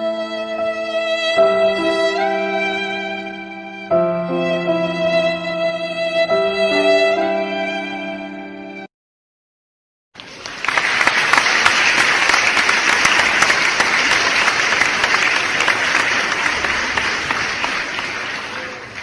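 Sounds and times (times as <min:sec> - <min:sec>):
crowd applause: 0:10.2 - 0:19.0.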